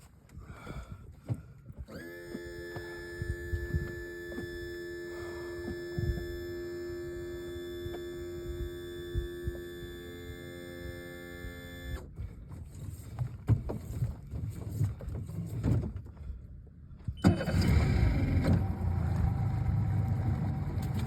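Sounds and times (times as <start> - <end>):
small motor whining: 1.9 - 12.1.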